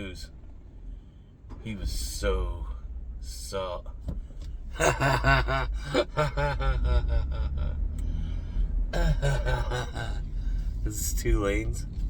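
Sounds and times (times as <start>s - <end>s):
car cabin rumble: 0.0s - 12.0s
man making wordless vocal sounds: 4.8s - 8.3s, 8.9s - 11.9s.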